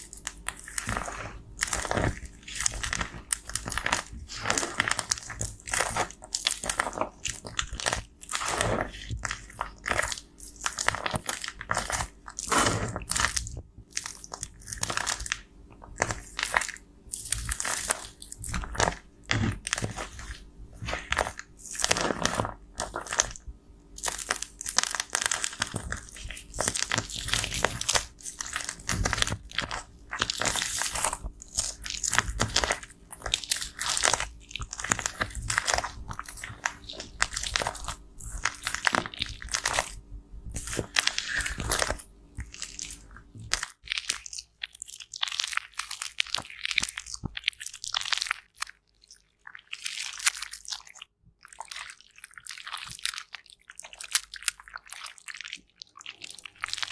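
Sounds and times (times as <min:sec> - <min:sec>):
powder crushed and scraped: 0:00.0 - 0:23.4, 0:24.0 - 0:44.3.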